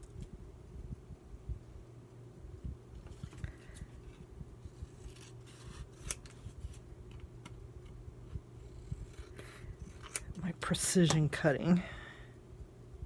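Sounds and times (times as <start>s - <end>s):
scissors snipping paper: 4.9s - 6.5s.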